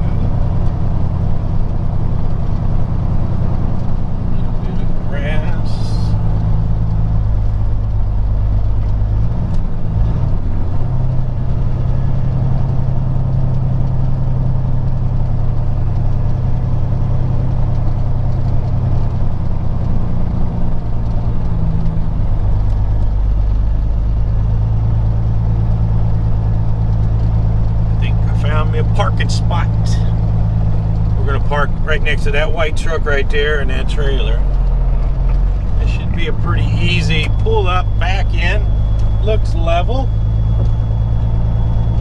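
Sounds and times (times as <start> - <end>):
truck diesel engine running: 0.0 - 42.0.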